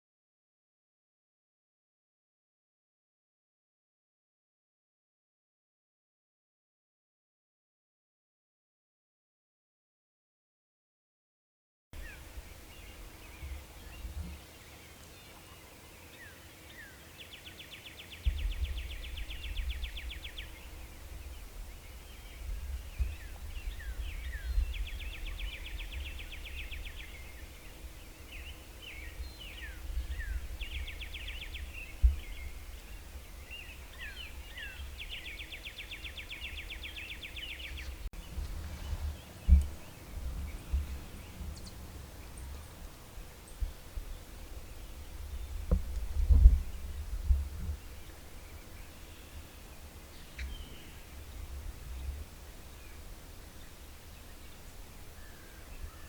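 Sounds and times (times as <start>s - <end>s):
wind rumble on microphone: 12.0s - 14.6s, 18.0s - 56.0s
songbird trills: 12.0s - 56.0s
bird chirps: 47.8s - 56.0s.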